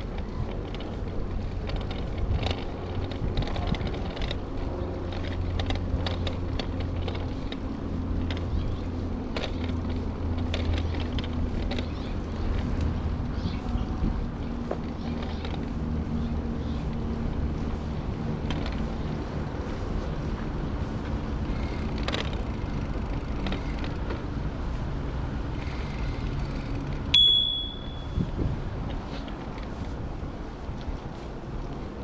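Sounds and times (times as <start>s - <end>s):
bicycle ride rumble: 0.0s - 32.0s
bicycle bell ring: 27.1s - 28.2s.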